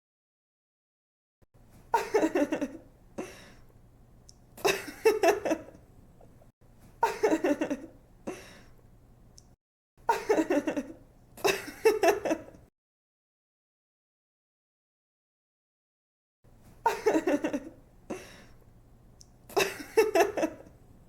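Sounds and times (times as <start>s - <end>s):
woman giggling: 1.9s - 2.8s, 4.6s - 5.8s, 7.0s - 8.5s, 10.1s - 12.6s, 16.8s - 18.4s, 19.5s - 20.7s.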